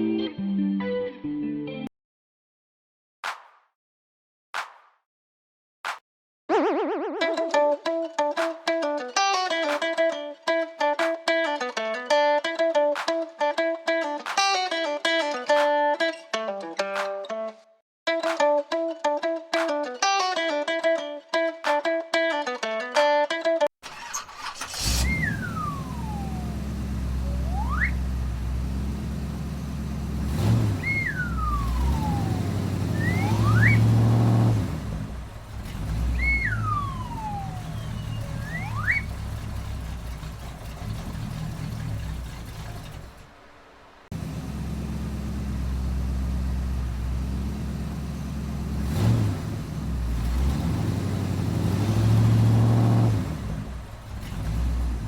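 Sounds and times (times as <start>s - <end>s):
low engine hum: 24.8s - 55.0s
high whistling swoops: 25.0s - 28.3s, 30.7s - 34.1s, 36.0s - 39.4s.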